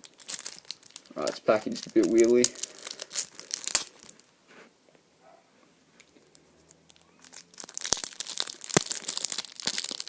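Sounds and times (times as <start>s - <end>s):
card box packaging crinkling: 0.0s - 4.2s, 6.9s - 10.0s.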